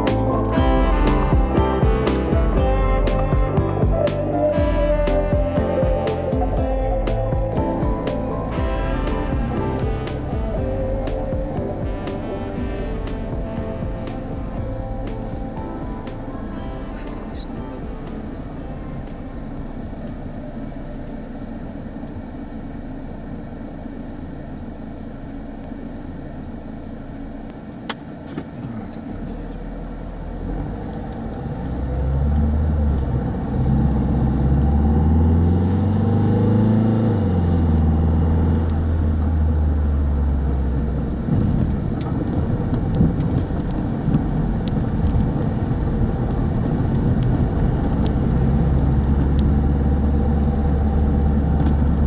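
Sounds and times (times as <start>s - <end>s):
car road noise: 6.4s - 52.0s.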